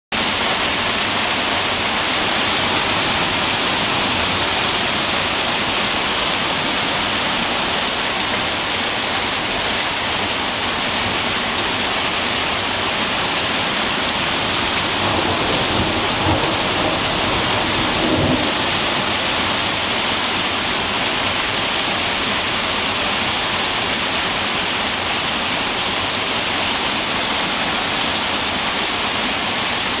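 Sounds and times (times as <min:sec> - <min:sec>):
hail pelting down: 0:00.2 - 0:23.3
low thunder rumble: 0:14.4 - 0:19.2.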